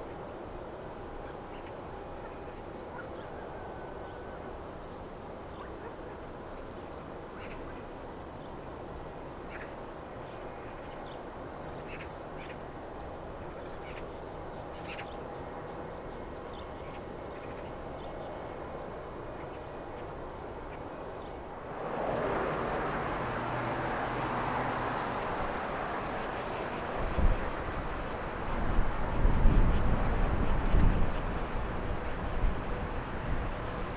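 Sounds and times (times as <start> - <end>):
open-air hiss: 21.3 - 33.9
high-pitched insect buzz: 21.5 - 33.9.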